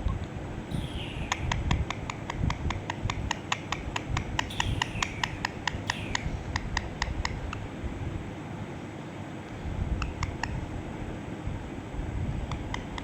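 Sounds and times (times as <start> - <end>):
parrot clicking: 1.3 - 7.6, 12.5 - 13.0.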